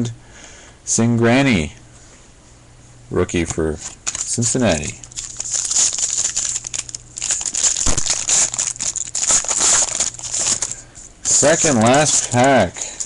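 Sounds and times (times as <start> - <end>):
foil wrapper crinkling: 3.8 - 13.0.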